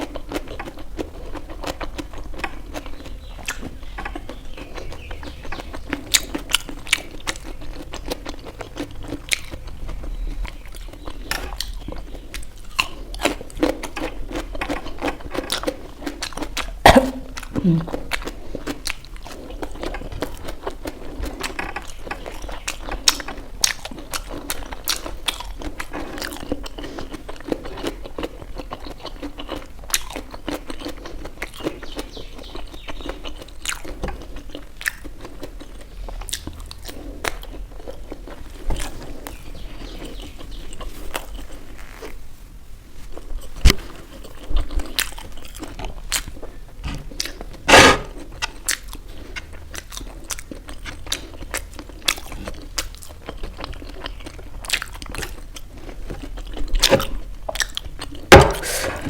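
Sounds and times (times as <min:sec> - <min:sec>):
person chewing and biting: 0:00.0 - 0:32.1, 0:32.8 - 0:42.2, 0:43.2 - 0:59.0
sharp clicks and crunches: 0:43.4 - 0:59.0.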